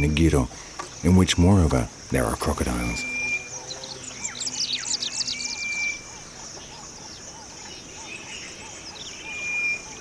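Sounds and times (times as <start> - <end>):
birds chirping: 0.0 - 10.0
insect drone: 0.0 - 10.0
whistled bird notes: 2.8 - 6.1, 6.7 - 10.0.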